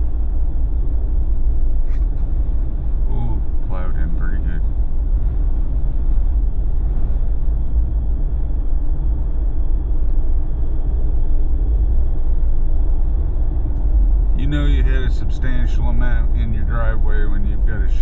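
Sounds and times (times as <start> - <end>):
road and engine noise in car cabin: 0.0 - 18.0.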